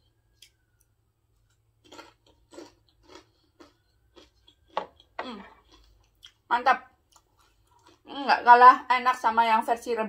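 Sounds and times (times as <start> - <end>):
crunchy chewing: 0.2 - 8.1.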